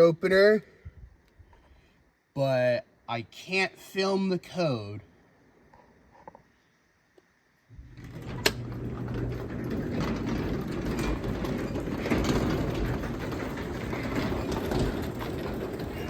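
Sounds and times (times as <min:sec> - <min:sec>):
garage door opener humming: 0:07.7 - 0:16.0
garage door rattling on track: 0:07.8 - 0:16.0.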